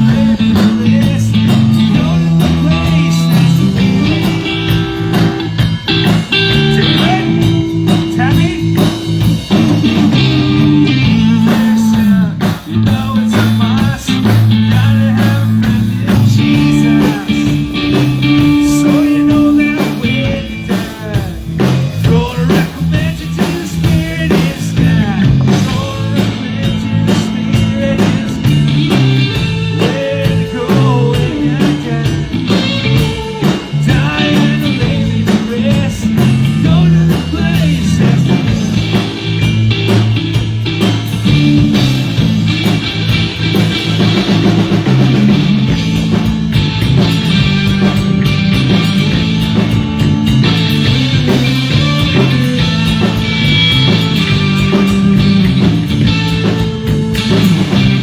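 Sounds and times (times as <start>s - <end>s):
person singing: 0.0s - 5.3s, 6.3s - 9.1s, 9.9s - 39.1s
bass line: 0.0s - 58.0s
drums: 0.0s - 58.0s
electric guitar: 0.0s - 58.0s.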